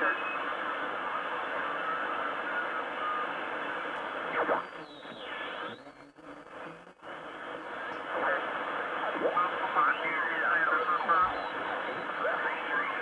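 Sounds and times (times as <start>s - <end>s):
radio static and hiss: 0.0s - 13.0s
radio whistling tones: 9.0s - 13.0s.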